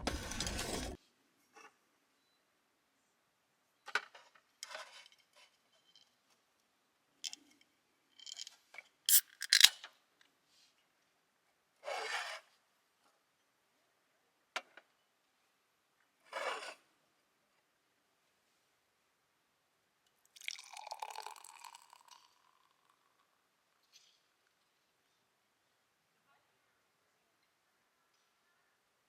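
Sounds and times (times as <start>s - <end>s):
objects scraping and rubbing: 0.0s - 1.0s, 9.1s - 9.8s.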